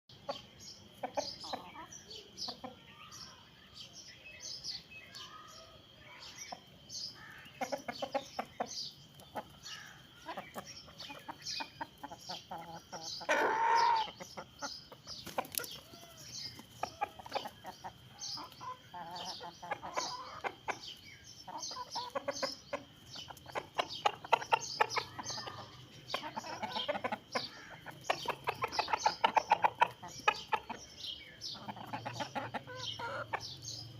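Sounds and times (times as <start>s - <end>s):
chickens clucking: 0.1s - 33.9s.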